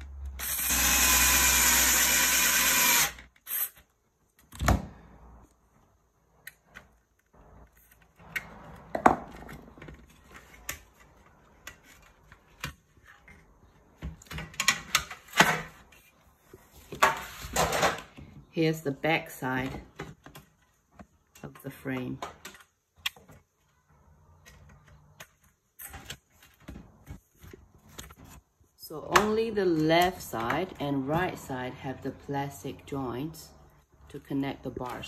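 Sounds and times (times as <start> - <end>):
cordless drill driving screw: 0.4 - 3.8
metal and plastic parts knocking: 14.0 - 15.8.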